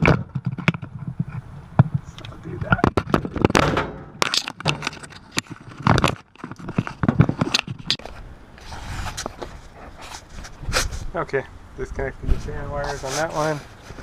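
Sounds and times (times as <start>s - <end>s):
tools clicking and scraping wiring: 4.2s - 8.1s
scratchy rustle: 4.8s - 11.1s, 12.2s - 14.0s.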